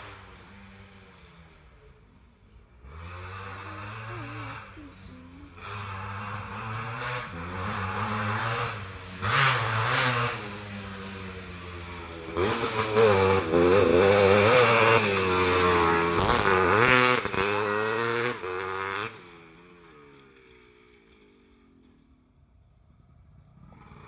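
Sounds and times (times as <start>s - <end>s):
motorcycle revving loud: 0.0s - 22.2s, 23.0s - 24.0s.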